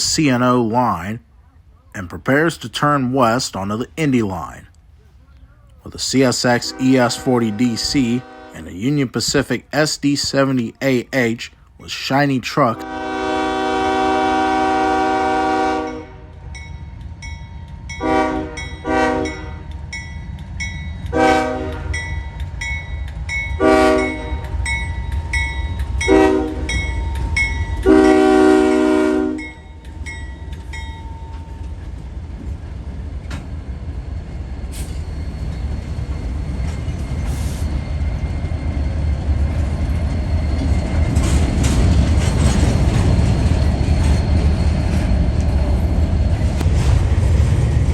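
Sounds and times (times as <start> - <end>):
train rumbling on wheels: 0.0 - 47.9
locomotive air horn blasts: 6.2 - 8.8, 12.7 - 16.4, 18.0 - 19.6, 21.1 - 22.1, 23.6 - 24.5, 26.1 - 26.8, 27.8 - 29.6.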